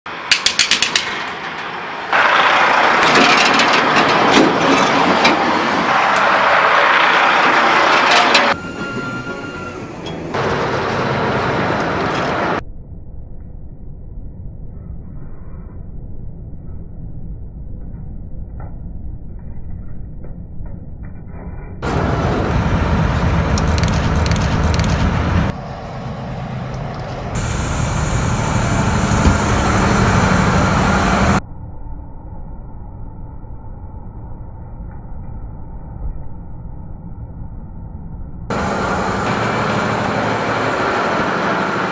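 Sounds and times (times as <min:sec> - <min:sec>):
train wheels rolling on rails: 0:00.1 - 0:12.6, 0:21.8 - 0:25.6, 0:26.5 - 0:31.4, 0:38.5 - 0:41.9
sharp wheel clacks: 0:00.3 - 0:01.8
sharp wheel clicks: 0:23.5 - 0:25.2.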